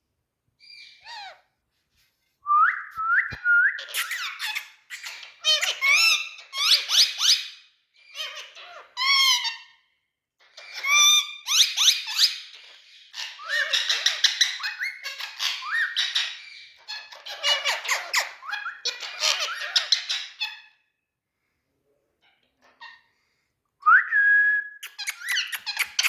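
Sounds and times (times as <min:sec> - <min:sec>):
parrot squawking: 0:00.7 - 0:01.4, 0:03.8 - 0:09.7, 0:10.6 - 0:20.6, 0:24.8 - 0:26.0.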